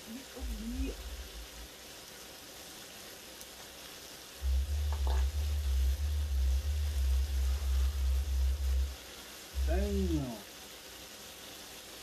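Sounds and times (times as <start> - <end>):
sausage sizzling in a pan: 0.0 - 12.0
deep even thumping: 0.4 - 1.6, 4.4 - 9.0, 9.6 - 10.2.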